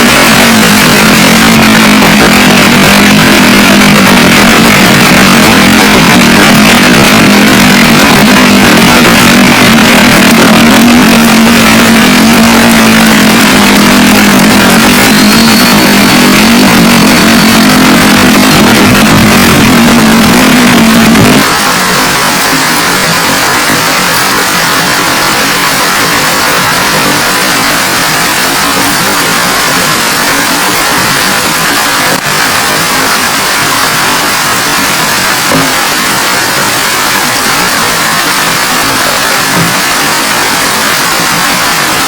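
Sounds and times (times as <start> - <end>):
steady low hum: 0.0 - 41.7
heavy rain downpour: 0.0 - 42.0.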